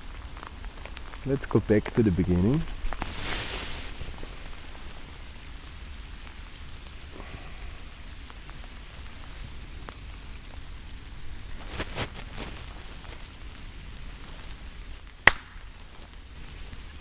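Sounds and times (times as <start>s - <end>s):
steady rain hiss: 0.0s - 17.0s
single raindrops ticking: 13.9s - 16.9s.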